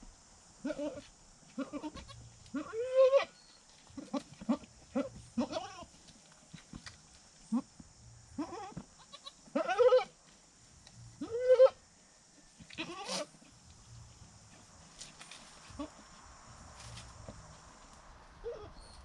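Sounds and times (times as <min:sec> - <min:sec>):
goat bleating: 0:00.6 - 0:03.3, 0:04.0 - 0:05.9, 0:08.4 - 0:10.1, 0:11.2 - 0:11.8, 0:12.7 - 0:13.4, 0:15.7 - 0:16.0.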